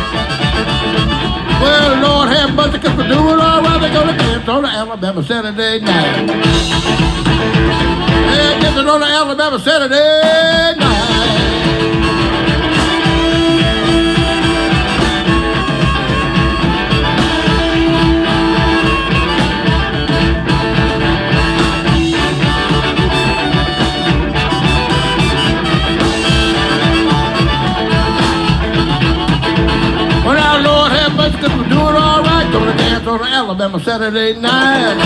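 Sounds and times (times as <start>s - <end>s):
lead instrument holding long notes: 0.0s - 2.8s, 6.4s - 9.0s, 10.8s - 32.9s
blues band playing: 0.0s - 33.7s, 34.4s - 35.0s.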